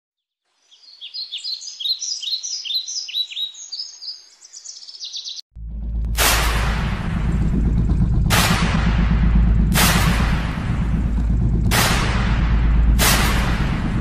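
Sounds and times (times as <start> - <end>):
small bird chirping: 0.5 - 5.4
loud deep rumble with hiss: 5.6 - 14.0.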